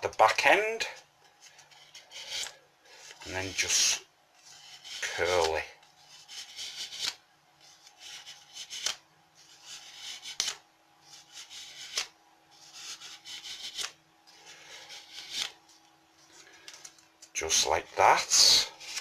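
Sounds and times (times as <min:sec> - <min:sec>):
fingers rubbing paper: 0:04.4 - 0:05.4, 0:11.1 - 0:13.9
paper crinkling: 0:18.7 - 0:19.0.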